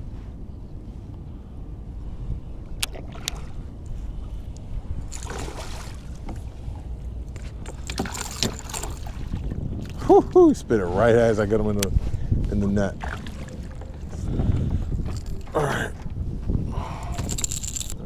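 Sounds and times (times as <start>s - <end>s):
wind rumble on microphone: 0.0s - 18.0s
fish splashing water: 5.1s - 6.3s, 7.7s - 10.0s.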